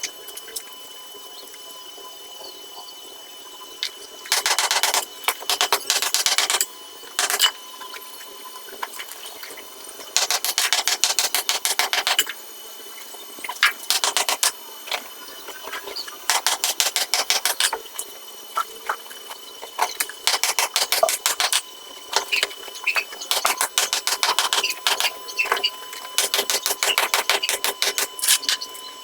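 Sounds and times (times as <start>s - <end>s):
rapid mechanical clicks: 4.3s - 7.5s, 10.1s - 12.3s, 13.6s - 15.0s, 16.3s - 17.8s, 19.8s - 28.6s.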